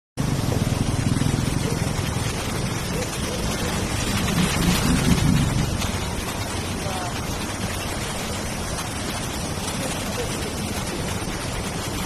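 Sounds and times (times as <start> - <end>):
vehicle engine rumbling: 0.2 - 12.0
water rushing: 0.2 - 12.0.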